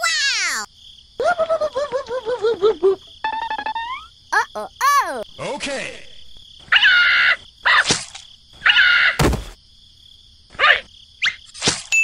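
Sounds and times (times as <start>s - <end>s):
gibberish voice sounds: 0.0s - 2.2s, 4.4s - 5.5s
high insect-like chirring: 0.6s - 5.4s
heavy thud: 9.2s - 9.6s.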